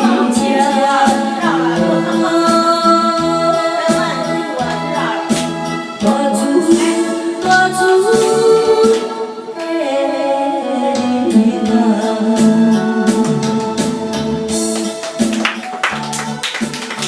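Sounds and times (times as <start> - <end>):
instrumental backing with beat: 0.0 - 17.0
person singing long sliding notes: 6.0 - 14.7.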